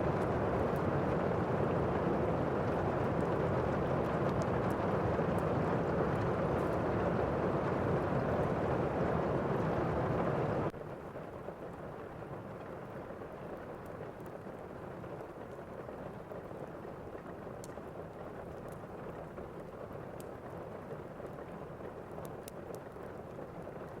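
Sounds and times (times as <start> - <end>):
heavy rain: 0.0 - 10.7
faint crackling ticks: 3.1 - 6.9, 12.5 - 24.0.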